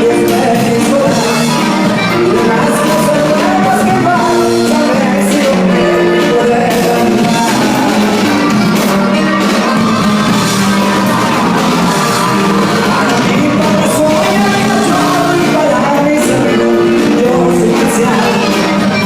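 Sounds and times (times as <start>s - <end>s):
man singing: 0.0s - 9.3s, 11.2s - 19.0s
live band music: 0.0s - 19.0s.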